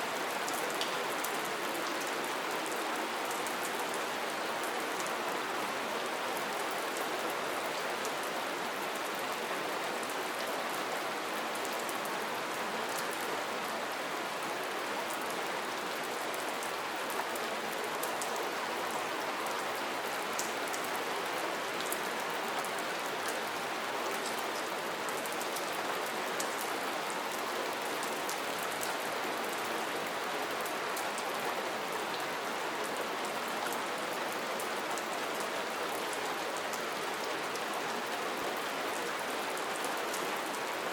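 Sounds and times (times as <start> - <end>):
soft rain falling: 0.0 - 40.9.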